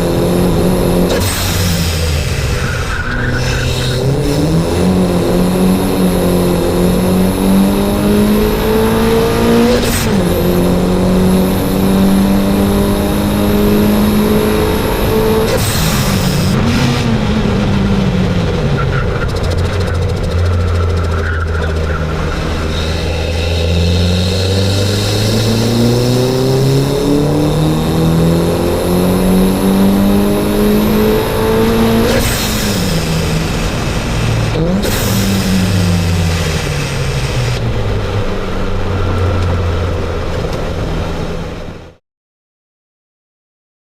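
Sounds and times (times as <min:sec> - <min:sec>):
car engine revving hard: 0:00.0 - 0:42.0
turbo flutter: 0:18.3 - 0:26.8.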